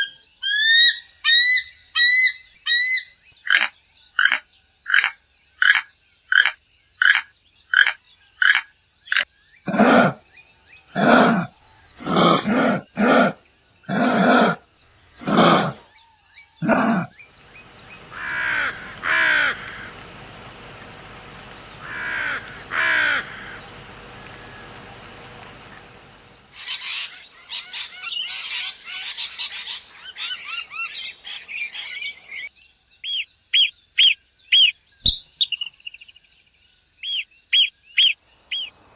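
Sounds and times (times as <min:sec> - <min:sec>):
deep animal calls: 0:09.7 - 0:10.2, 0:10.9 - 0:15.9, 0:16.6 - 0:27.1
short repeated animal calls: 0:10.9 - 0:14.6, 0:15.2 - 0:15.8, 0:16.6 - 0:27.2
dense high bird chirping: 0:16.7 - 0:32.5, 0:37.9 - 0:38.9
noisy background: 0:17.3 - 0:26.7.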